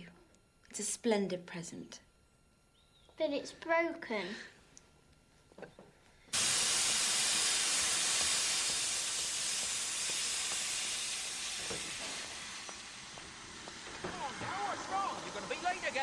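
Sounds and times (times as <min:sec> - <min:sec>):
steam locomotive hissing steam: 0:06.3 - 0:16.0.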